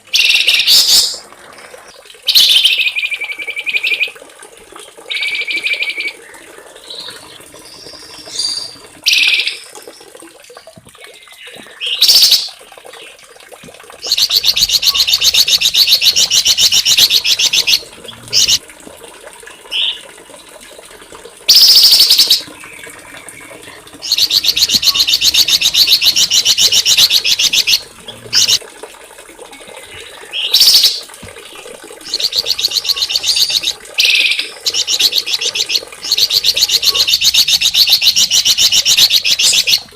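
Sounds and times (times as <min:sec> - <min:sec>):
songbird calls: 0:14.1 - 0:18.6, 0:21.5 - 0:28.6, 0:32.0 - 0:39.9
songbird trills: 0:21.5 - 0:28.6.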